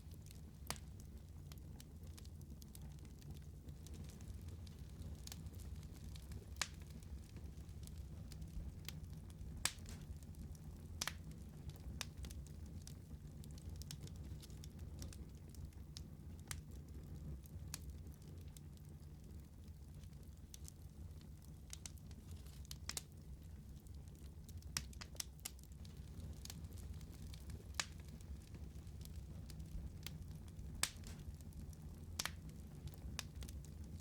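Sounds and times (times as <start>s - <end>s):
wood fire crackling: 0.0s - 34.0s
sharp pops of fire: 3.8s - 10.2s, 11.0s - 11.3s, 24.8s - 31.5s, 32.2s - 33.6s.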